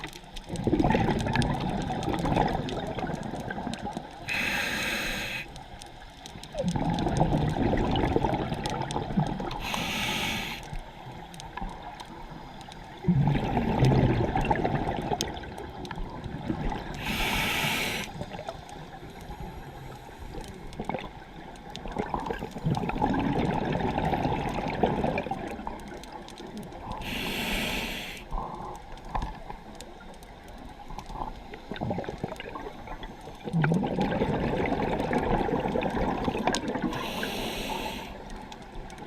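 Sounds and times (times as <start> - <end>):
bubbling gurgling exhaust: 0.0 - 4.4, 6.5 - 10.0, 13.0 - 18.4, 21.9 - 25.8, 33.4 - 37.4
regulator inhale hisses: 4.3 - 5.6, 9.6 - 11.0, 17.0 - 18.2, 27.0 - 28.7, 36.9 - 38.3.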